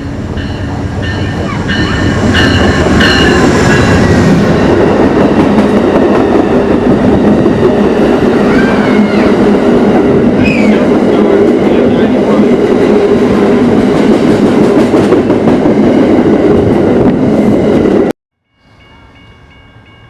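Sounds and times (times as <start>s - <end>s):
train rolling past: 0.0s - 20.0s.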